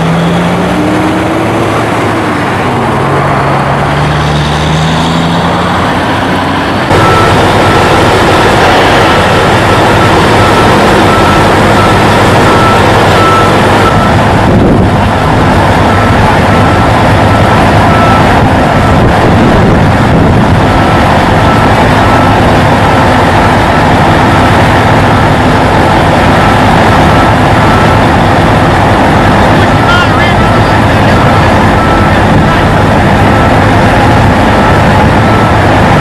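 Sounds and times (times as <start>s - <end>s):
diesel truck engine under load: 0.0s - 36.0s
faint high beeps: 6.9s - 7.9s.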